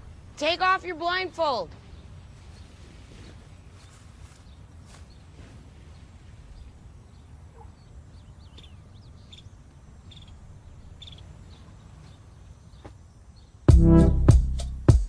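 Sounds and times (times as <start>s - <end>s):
faint bird chirps: 1.8s - 13.7s.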